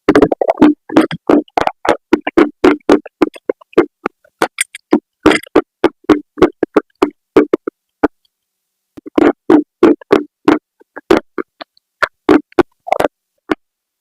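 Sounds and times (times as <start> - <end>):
clay pot pieces being chewed: 0.1 - 8.2.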